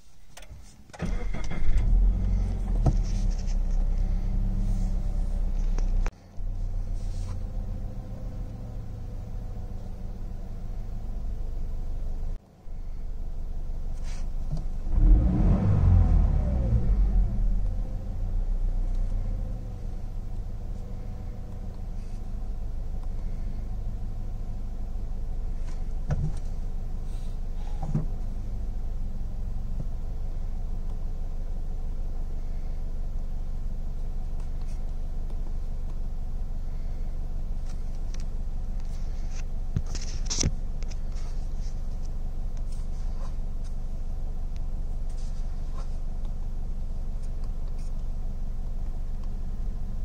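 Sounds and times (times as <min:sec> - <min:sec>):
car engine idling: 0:00.4 - 0:50.0.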